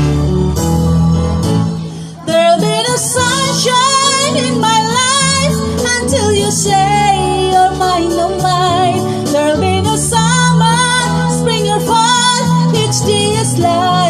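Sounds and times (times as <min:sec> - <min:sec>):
instrumental backing: 0:00.0 - 0:14.0
person singing with vibrato: 0:01.7 - 0:14.0.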